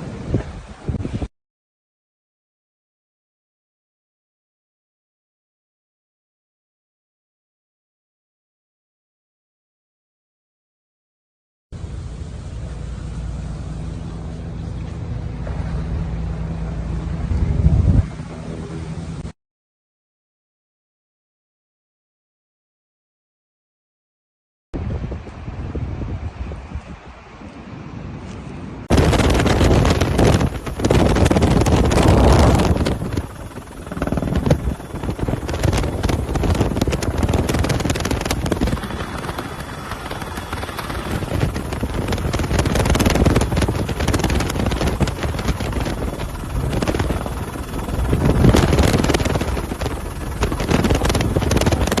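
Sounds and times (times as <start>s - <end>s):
loud rushing roar: 28.9s - 52.0s.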